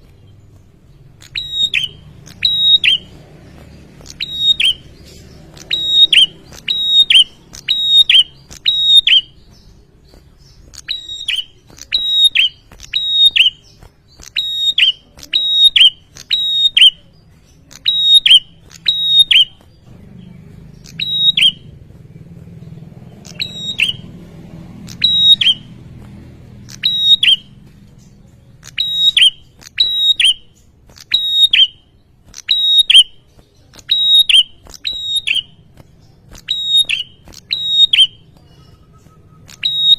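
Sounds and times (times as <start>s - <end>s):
bird calling sharp high notes: 1.2s - 9.8s, 17.7s - 19.6s, 20.8s - 21.7s, 23.2s - 24.1s, 24.8s - 25.8s, 26.6s - 27.7s, 28.6s - 33.2s, 36.4s - 39.9s.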